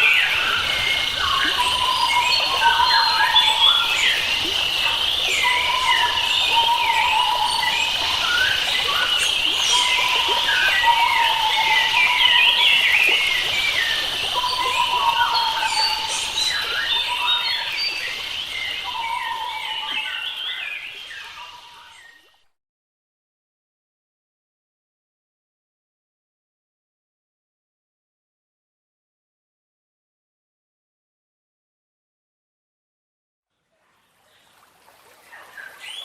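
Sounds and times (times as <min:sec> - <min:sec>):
forest birds chirping: 0:00.0 - 0:22.4, 0:33.5 - 0:36.0.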